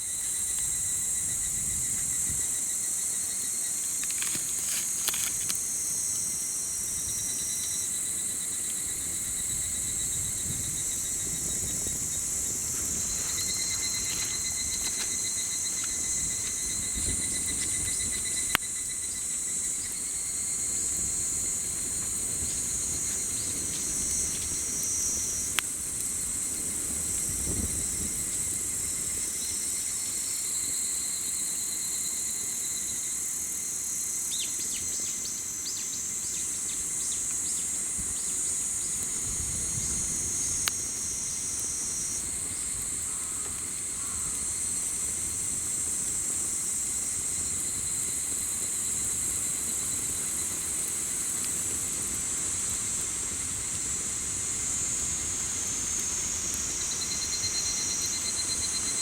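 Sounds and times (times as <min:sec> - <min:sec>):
insects buzzing and trilling: 0:00.0 - 0:59.0
campfire pops: 0:03.7 - 0:06.4, 0:10.2 - 0:29.9, 0:38.9 - 0:58.0.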